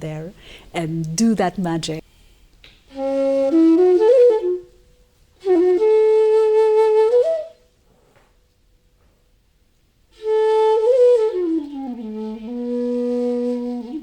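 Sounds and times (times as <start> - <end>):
bamboo flute solo: 2.9 - 8.4, 10.1 - 14.0.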